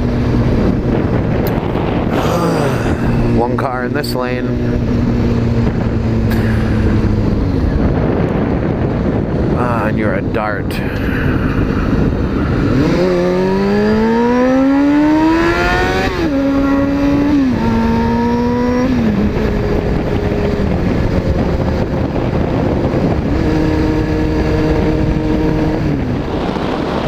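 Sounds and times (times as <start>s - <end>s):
motorcycle engine accelerating: 0.0s - 9.9s, 11.2s - 27.0s
wind: 0.0s - 27.0s.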